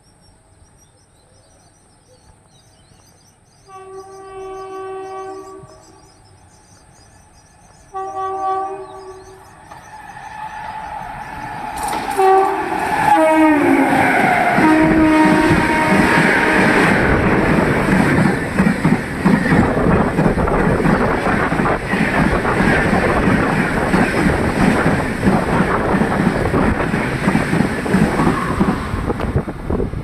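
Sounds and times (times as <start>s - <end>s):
crickets chirping: 0.0s - 8.1s, 8.9s - 13.1s
locomotive air horn blasts: 3.7s - 5.8s, 7.9s - 9.3s, 12.2s - 17.0s, 28.2s - 28.8s
train rumble and wheel noise: 3.7s - 30.0s.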